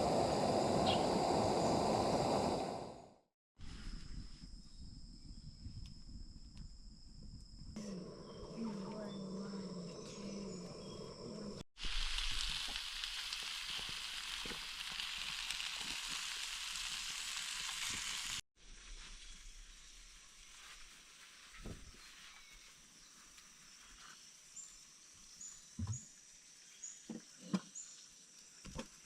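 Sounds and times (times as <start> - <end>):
food sizzling in a pan: 11.8 - 22.6.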